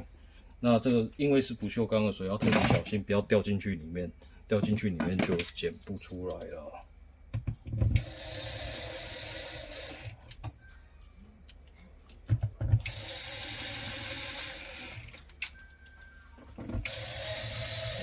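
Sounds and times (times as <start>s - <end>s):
electric screwdriver running: 8.0s - 10.2s, 12.9s - 15.2s, 16.8s - 18.0s.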